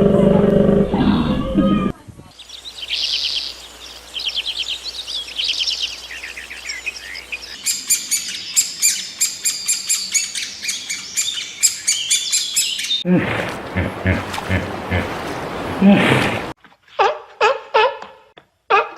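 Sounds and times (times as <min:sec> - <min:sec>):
small birds trilling: 0:02.3 - 0:15.3.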